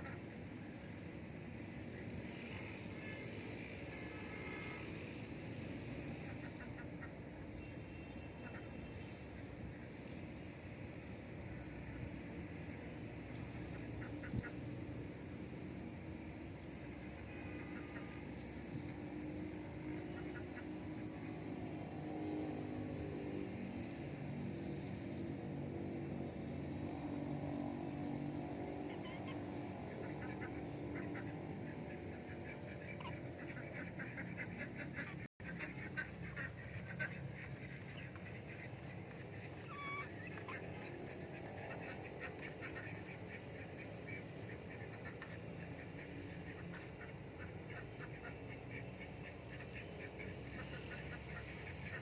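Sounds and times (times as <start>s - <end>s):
ducks quacking: 28.9s - 52.0s.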